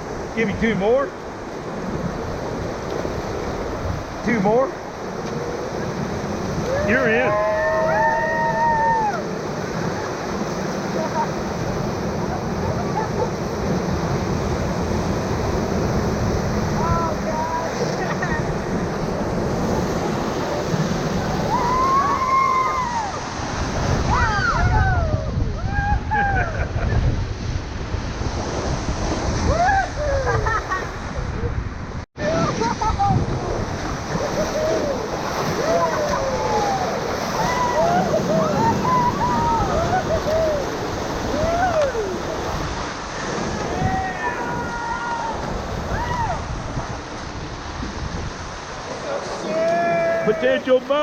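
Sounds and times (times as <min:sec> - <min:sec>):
whitewater rushing: 0:00.0 - 0:26.3, 0:32.2 - 0:51.0
people whooping: 0:06.6 - 0:09.4, 0:21.2 - 0:23.3, 0:24.1 - 0:26.7, 0:29.5 - 0:30.6, 0:34.1 - 0:42.4, 0:43.5 - 0:46.5, 0:49.4 - 0:50.6.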